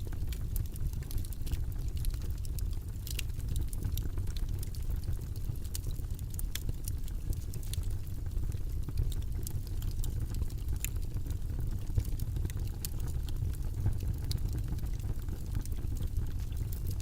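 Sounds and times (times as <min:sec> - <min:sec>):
low rumbling white noise: 0:00.0 - 0:17.0
faint irregular clicks: 0:00.2 - 0:07.9.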